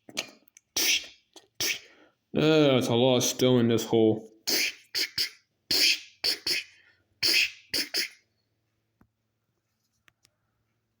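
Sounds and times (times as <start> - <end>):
person making mouth sound effects: 0.0 - 2.0, 4.4 - 8.3.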